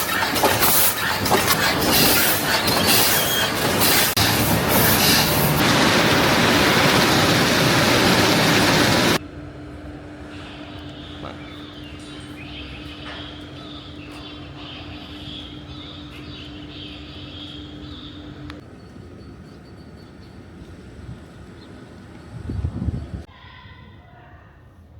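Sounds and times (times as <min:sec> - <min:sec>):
high machine whirring: 0:00.0 - 0:09.2
machine hum: 0:00.0 - 0:23.3
loud rushing noise: 0:01.4 - 0:09.2.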